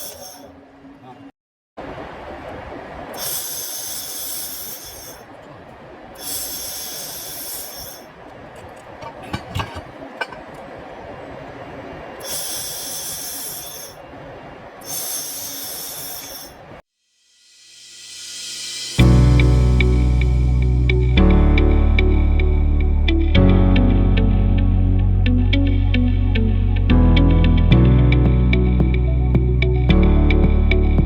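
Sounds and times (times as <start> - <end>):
laser welder hissing: 0.0 - 0.5, 3.2 - 5.2, 6.2 - 8.1, 12.2 - 14.0, 14.8 - 16.6
steady machine noise: 0.0 - 0.5, 3.2 - 5.3, 6.2 - 10.6, 12.2 - 14.0, 14.8 - 16.6.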